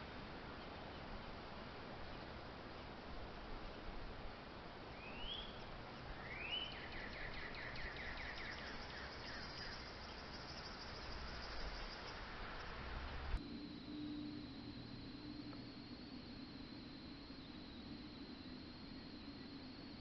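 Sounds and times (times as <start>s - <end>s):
pulsing insect trill: 4.9s - 20.0s.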